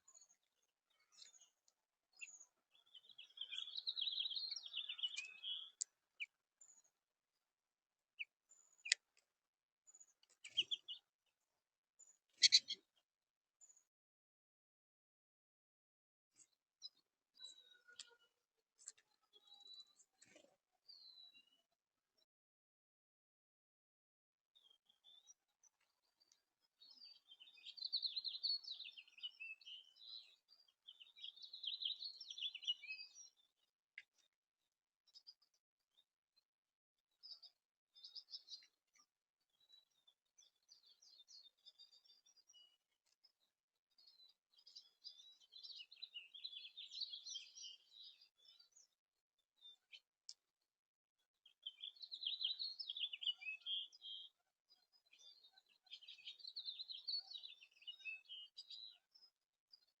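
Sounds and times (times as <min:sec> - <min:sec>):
songbird twittering song: 0:00.0 - 0:07.0, 0:08.1 - 0:09.3, 0:09.9 - 0:11.2, 0:12.0 - 0:13.0, 0:16.4 - 0:22.3, 0:24.6 - 0:34.4, 0:35.0 - 0:36.1, 0:37.1 - 0:49.0, 0:49.6 - 0:50.4, 0:51.2 - 1:00.0
songbird warbling: 0:12.4 - 0:12.8.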